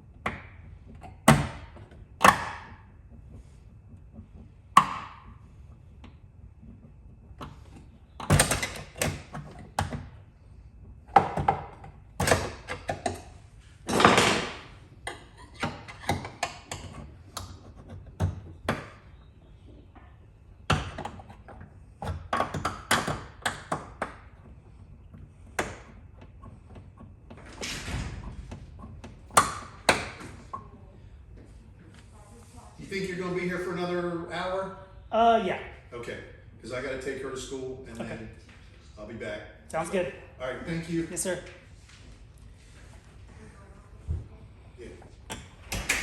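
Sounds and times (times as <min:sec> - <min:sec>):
knocks taps and clunks: 0:00.0 - 0:13.3, 0:13.9 - 0:31.5.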